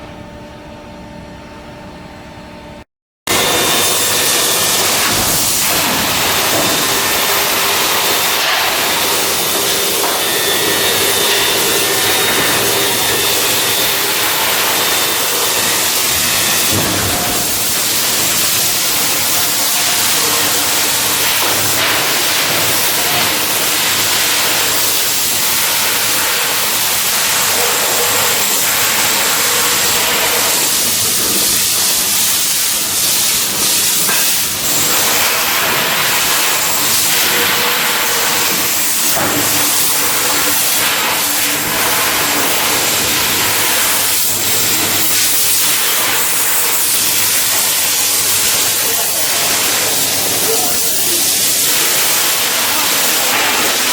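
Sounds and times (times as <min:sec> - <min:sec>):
loud steady hissing: 0:03.3 - 0:53.9.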